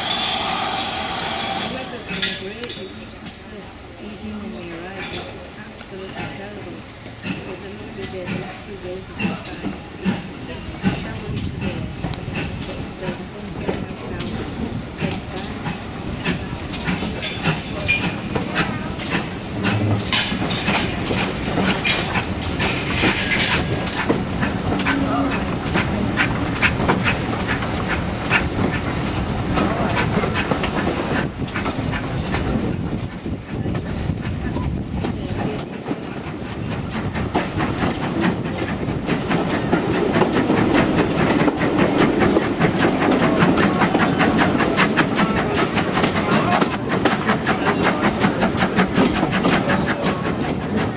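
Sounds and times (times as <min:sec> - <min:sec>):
train wheels clattering over track: 0:00.0 - 0:50.9
steady rushing noise: 0:15.7 - 0:34.4.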